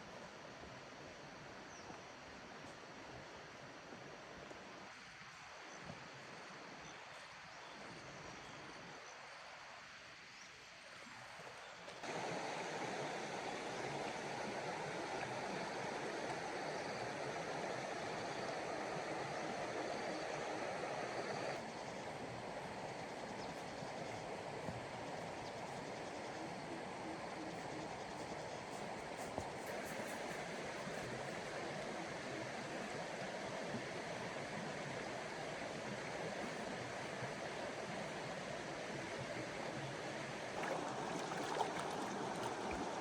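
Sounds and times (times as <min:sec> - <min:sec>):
water rushing: 0:12.0 - 0:23.2, 0:40.3 - 0:43.0.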